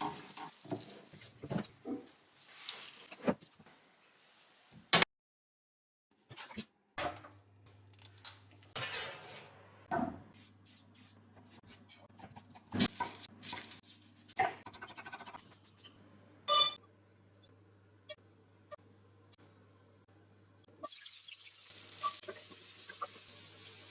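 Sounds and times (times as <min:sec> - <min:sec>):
utensils and dishes clinking: 0:07.9 - 0:09.5.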